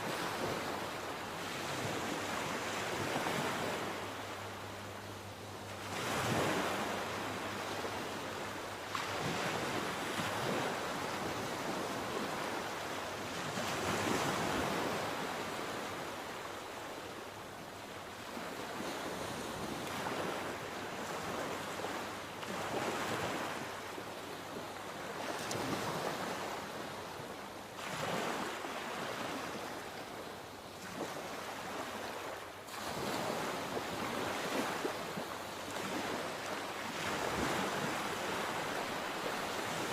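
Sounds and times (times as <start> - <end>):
sea waves breaking: 18.1 - 39.9.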